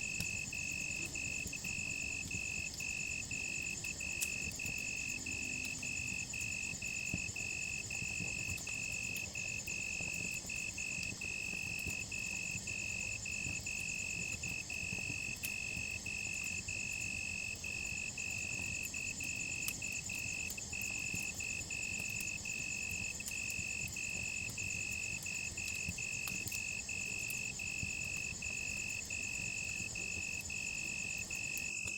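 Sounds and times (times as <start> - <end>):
campfire crackling: 0.0 - 31.9
crickets chirping: 0.0 - 31.9.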